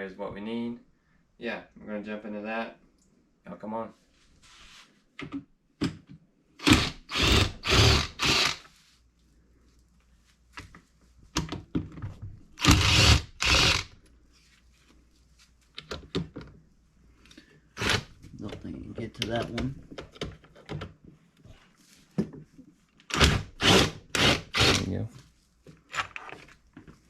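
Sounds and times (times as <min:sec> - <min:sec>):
power drill bursts: 0:06.6 - 0:08.6, 0:12.6 - 0:13.9, 0:17.8 - 0:18.1, 0:23.1 - 0:24.9.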